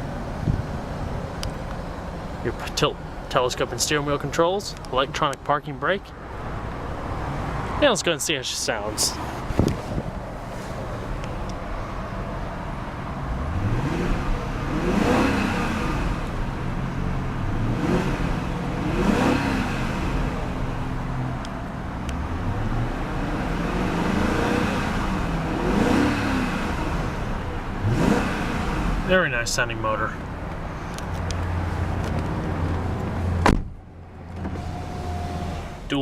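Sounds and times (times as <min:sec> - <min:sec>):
car engine revving from idle: 0:13.2 - 0:21.2, 0:22.1 - 0:29.6.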